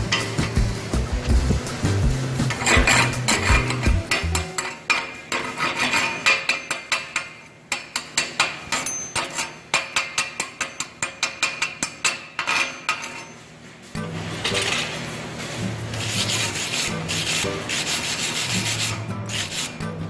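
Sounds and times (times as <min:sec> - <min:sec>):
chipping hammer tapping steel: 0:06.2 - 0:13.2.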